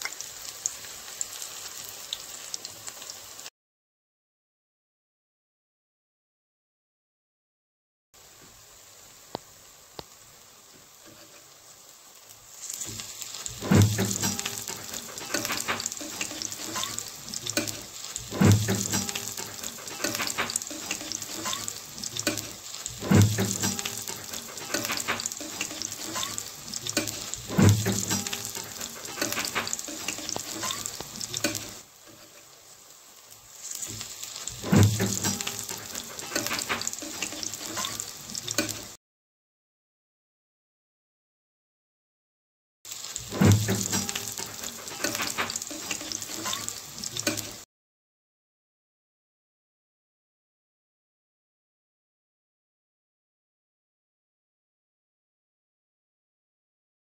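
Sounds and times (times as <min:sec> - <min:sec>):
pakoras sizzling in hot oil: 0:00.0 - 0:03.5, 0:08.2 - 0:39.0, 0:42.9 - 0:47.7
spatula clunking in pan: 0:12.8 - 0:31.8, 0:33.9 - 0:38.9, 0:43.3 - 0:47.5.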